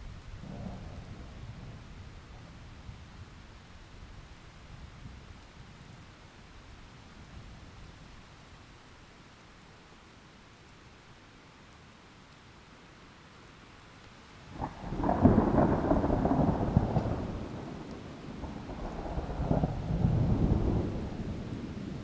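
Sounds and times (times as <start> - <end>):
rain hissing: 14.3 - 22.0
thunder rumbling: 14.6 - 22.0.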